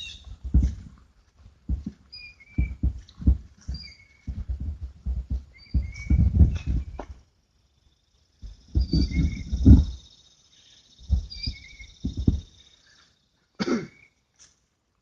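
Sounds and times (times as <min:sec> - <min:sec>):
bird chirping: 0:00.0 - 0:00.4, 0:02.0 - 0:14.2
muffled thumps and rustles: 0:00.0 - 0:07.2, 0:08.4 - 0:10.1, 0:11.0 - 0:12.6.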